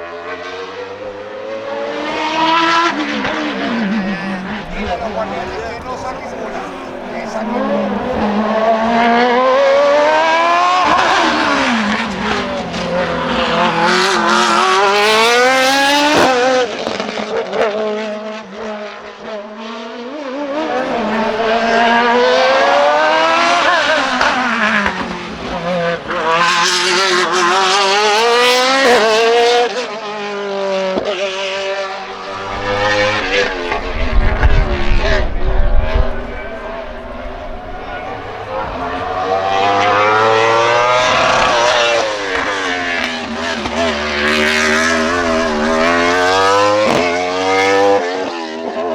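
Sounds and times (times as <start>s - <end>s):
racing car engines accelerating: 0.7s - 16.5s, 20.5s - 25.1s, 32.1s - 48.4s.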